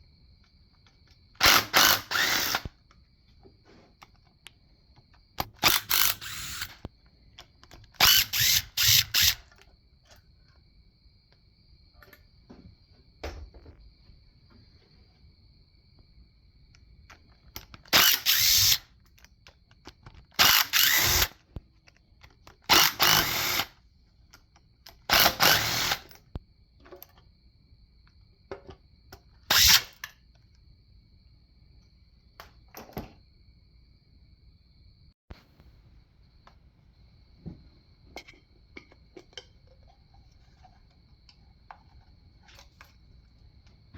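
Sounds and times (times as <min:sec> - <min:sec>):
power tool bursts: 0:01.4 - 0:02.7, 0:05.4 - 0:06.8, 0:08.0 - 0:09.4, 0:17.9 - 0:18.8, 0:20.4 - 0:21.4, 0:22.7 - 0:23.7, 0:25.1 - 0:26.2, 0:29.5 - 0:30.0.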